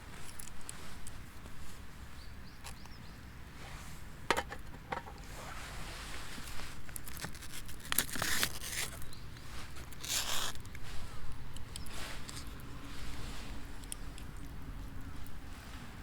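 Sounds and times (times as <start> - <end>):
rustling and crinkling material: 5.2 - 16.0.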